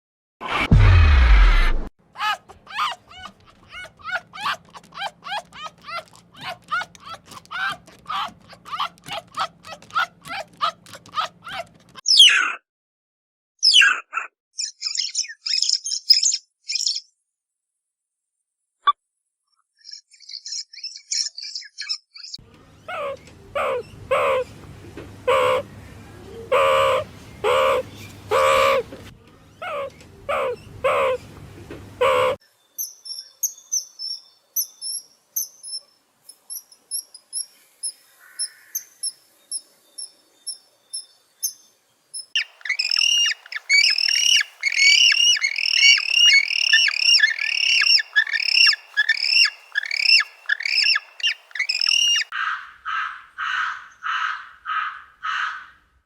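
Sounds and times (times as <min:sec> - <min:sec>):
fast falling bird chirps: 0:02.2 - 0:12.4, 0:42.3 - 0:52.3
harsh bird calls: 0:02.2 - 0:12.5, 0:19.9 - 0:32.4, 0:42.3 - 0:55.7
thin high bird chirps: 0:14.6 - 0:17.1, 0:19.7 - 0:22.4, 0:32.5 - 0:52.3
lower bird calls: 0:25.2 - 0:29.0, 0:29.6 - 0:31.3, 0:32.0 - 0:32.4, 0:42.2 - 0:55.6.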